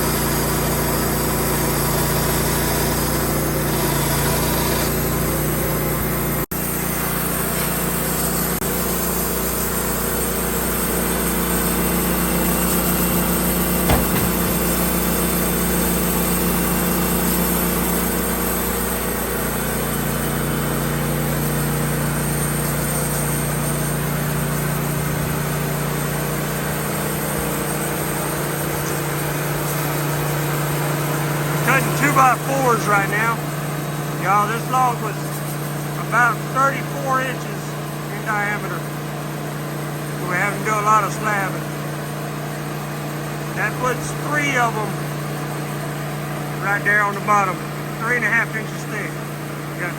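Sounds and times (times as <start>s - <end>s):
band sawmill cutting a log: 0.0s - 49.9s
short knock: 13.9s - 15.0s.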